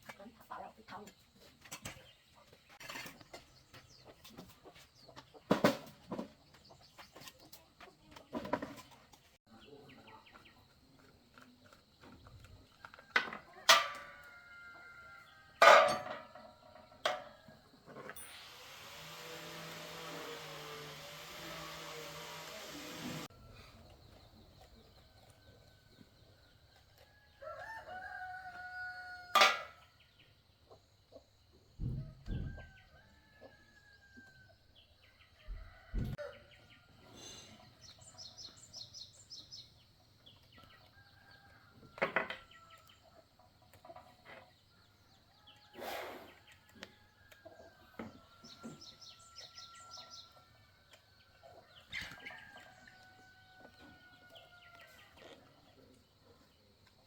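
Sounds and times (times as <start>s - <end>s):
roosters crowing: 13.6s - 16.0s, 27.0s - 29.8s, 51.5s - 55.1s.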